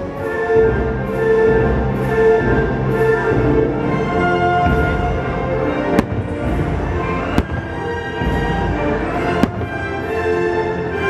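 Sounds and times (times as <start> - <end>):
loud music: 3.5 - 11.0
fireworks bangs: 5.8 - 10.2.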